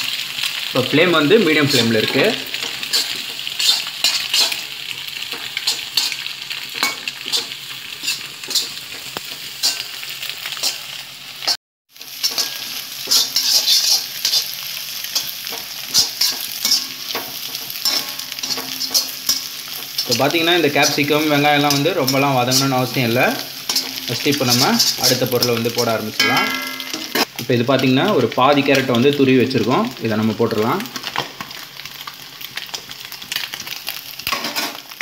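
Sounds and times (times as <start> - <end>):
food sizzling in a wok: 0.0 - 35.0
spatula scraping a wok: 1.8 - 25.6, 34.2 - 35.0.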